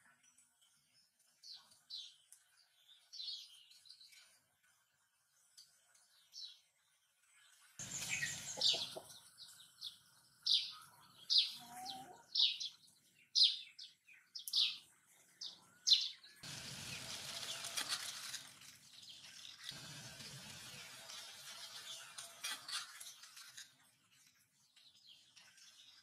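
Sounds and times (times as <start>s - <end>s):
rustling noise: 16.5s - 23.8s.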